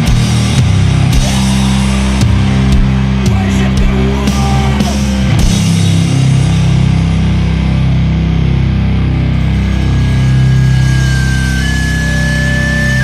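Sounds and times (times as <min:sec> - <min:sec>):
drum hits: 0:00.0 - 0:06.2
distorted guitar and bass: 0:00.0 - 0:13.0
guitar feedback tone: 0:00.0 - 0:13.0.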